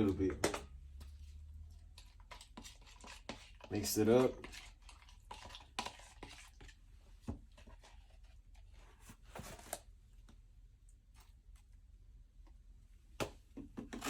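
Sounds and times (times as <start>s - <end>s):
scrapes of mixing compound: 0.0s - 9.9s, 13.8s - 14.0s.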